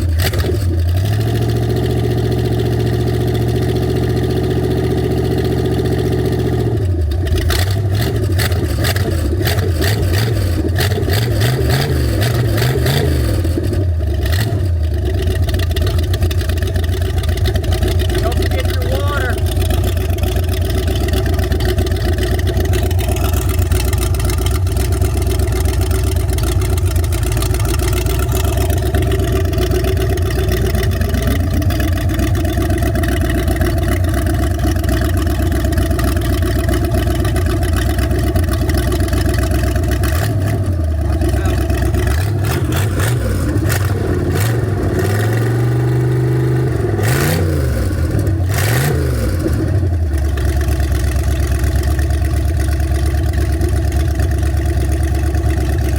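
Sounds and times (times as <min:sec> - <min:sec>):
boat engine running and revving: 0:00.0 - 0:55.9.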